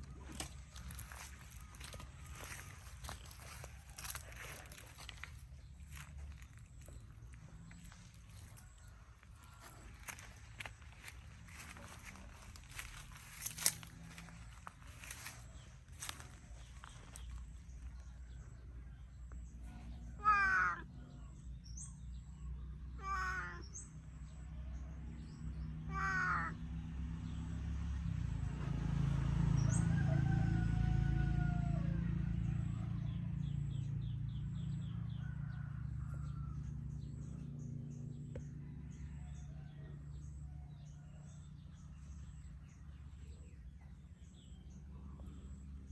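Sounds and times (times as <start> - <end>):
low rumble: 0.0 - 20.2
cat meowing: 20.2 - 20.8, 23.0 - 23.6, 25.9 - 26.6.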